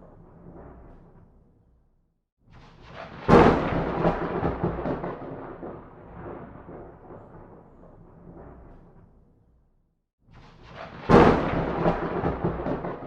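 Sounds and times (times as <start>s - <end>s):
thunder rumble: 2.8s - 9.2s, 10.6s - 13.0s
sharp thunder crack: 3.0s - 7.7s, 10.9s - 13.0s.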